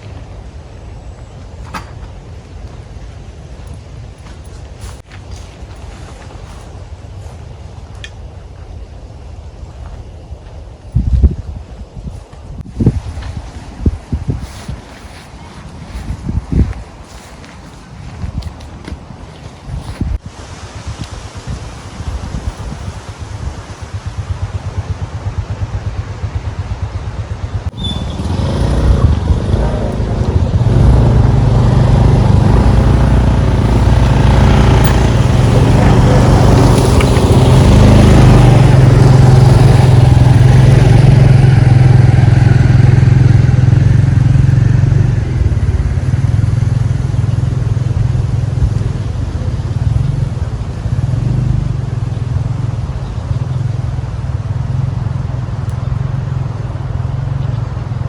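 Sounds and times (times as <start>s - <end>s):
vehicle engine running: 21.1s - 58.0s.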